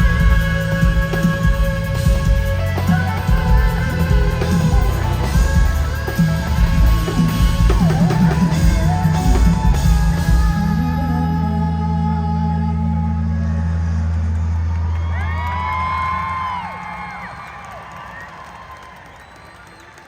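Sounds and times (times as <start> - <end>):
live country-rock band: 0.0 - 14.1.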